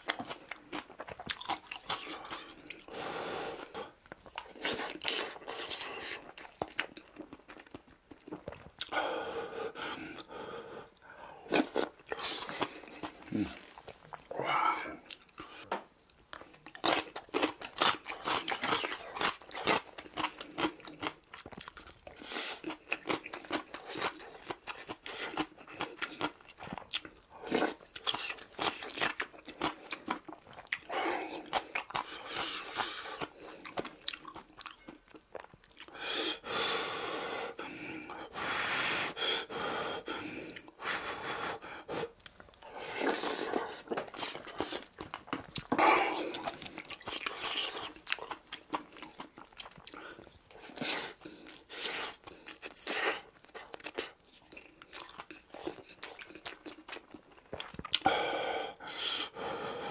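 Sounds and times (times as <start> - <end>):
man chewing and biting food: 0.0 - 38.6, 39.4 - 59.8
mouth clicks and crunches: 15.0 - 36.0, 42.2 - 58.1.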